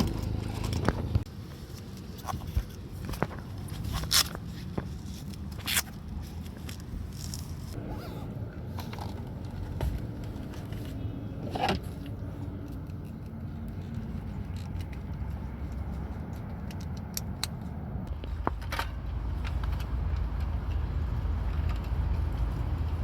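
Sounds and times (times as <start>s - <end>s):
wind and road rumble: 0.0s - 23.0s
bicycle clicks and rattles: 12.6s - 23.0s.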